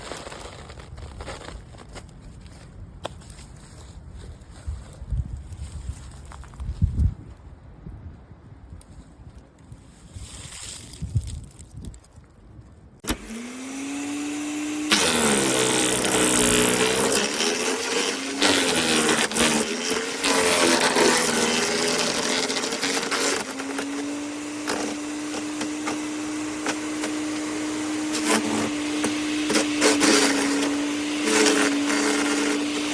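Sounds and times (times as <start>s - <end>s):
branches crunching and shredding: 0.0s - 6.8s, 9.6s - 12.1s, 13.0s - 32.9s
wood chipper motor whine: 13.0s - 32.9s.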